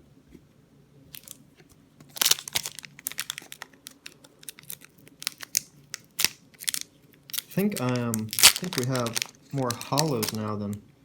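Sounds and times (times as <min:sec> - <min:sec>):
foil wrapper crinkling and tearing: 0:01.1 - 0:01.4, 0:02.1 - 0:10.5.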